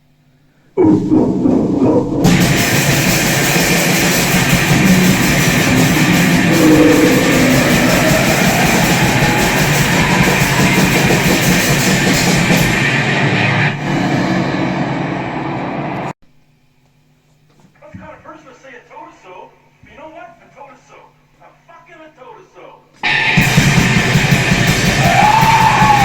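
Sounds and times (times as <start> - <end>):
pounding drums: 0.8 - 13.8, 23.0 - 26.0
distorted electric guitar: 0.8 - 15.2, 23.0 - 26.0.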